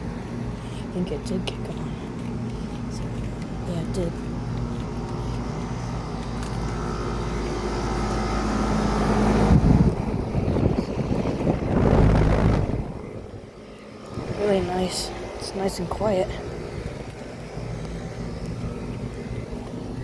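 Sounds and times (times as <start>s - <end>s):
compressor and fan hum: 0.0s - 20.0s
loud rushes of noise: 11.0s - 13.3s.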